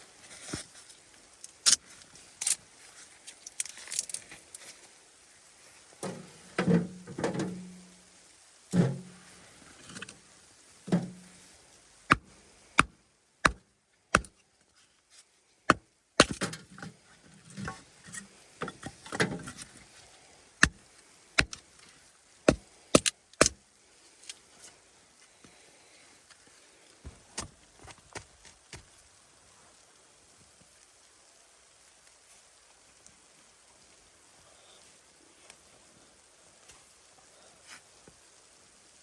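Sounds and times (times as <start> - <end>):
sharp knocks and cracks: 8.8 - 9.1, 10.9 - 11.2, 12.1 - 13.6, 15.7 - 16.9, 21.4 - 21.7, 22.5 - 23.6
dull thuds: 8.8 - 9.2.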